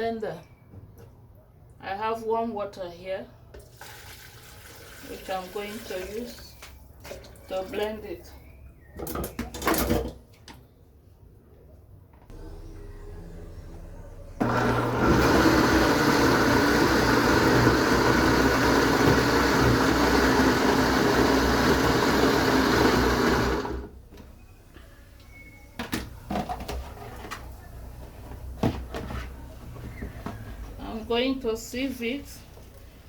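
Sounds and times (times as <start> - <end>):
electric blender running: 14.4 - 24.0.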